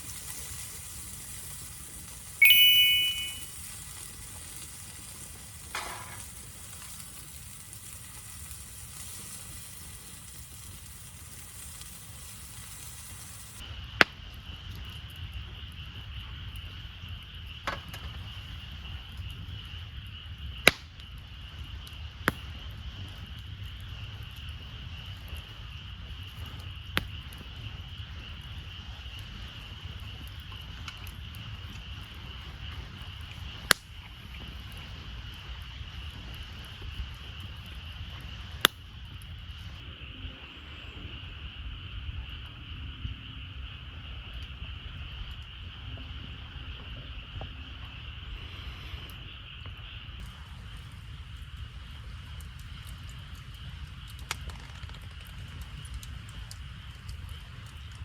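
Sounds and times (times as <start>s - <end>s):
soft hiss: 0.0s - 13.6s
campfire crackling and popping: 0.0s - 39.9s, 41.8s - 58.0s
high-pitched hum: 2.4s - 3.5s.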